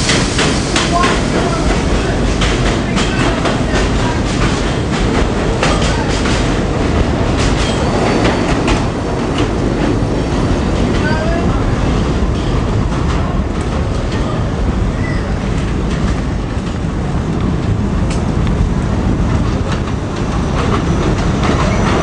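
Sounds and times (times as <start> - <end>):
subway train rumbling: 0.0 - 22.0
train wheel squeals: 20.3 - 22.0.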